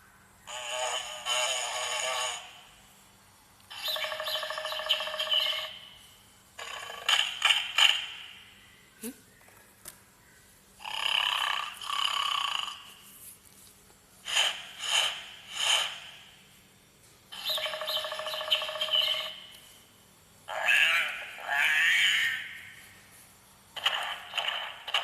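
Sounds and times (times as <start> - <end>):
recorded animal calls from toy: 3.7 - 5.8, 17.4 - 19.4, 20.5 - 22.6.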